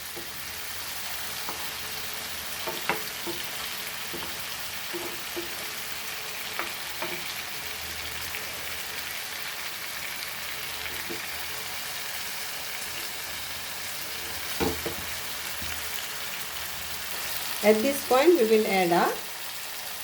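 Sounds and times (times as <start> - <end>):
food sizzling in hot oil: 0.0 - 20.0
spoon knocking against pan: 2.6 - 5.7, 6.5 - 7.3, 14.6 - 15.1.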